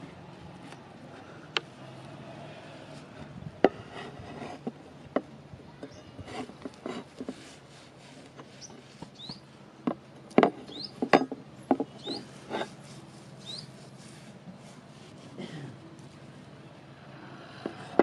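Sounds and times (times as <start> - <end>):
light taps and rubbing: 3.6 - 15.4.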